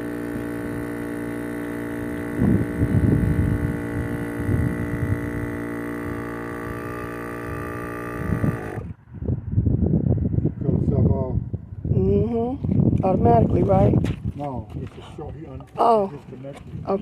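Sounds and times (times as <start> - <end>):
electric air pump humming: 0.0 - 9.0.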